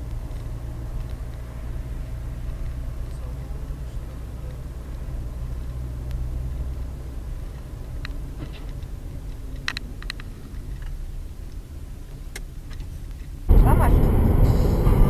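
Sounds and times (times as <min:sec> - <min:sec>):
car driving rumble: 0:00.0 - 0:15.0.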